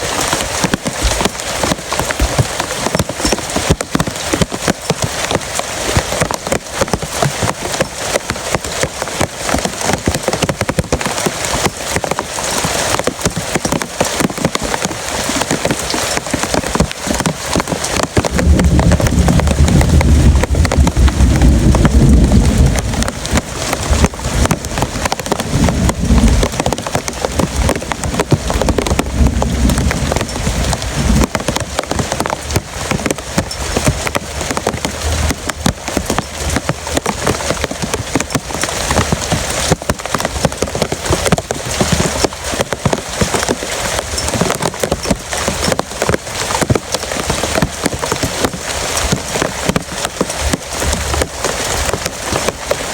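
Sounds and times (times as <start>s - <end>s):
heavy rain drumming: 0.0s - 52.9s
low rumble: 18.3s - 24.5s.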